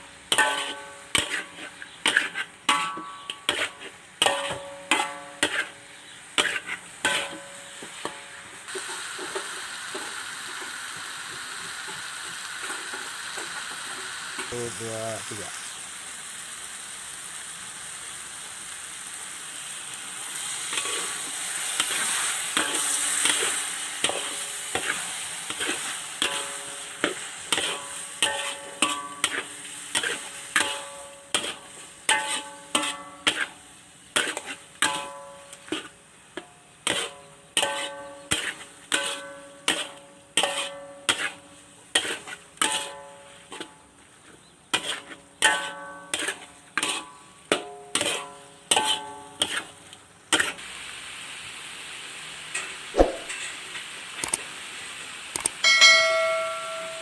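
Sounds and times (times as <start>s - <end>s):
curry sizzling in a pot: 0.0s - 57.0s.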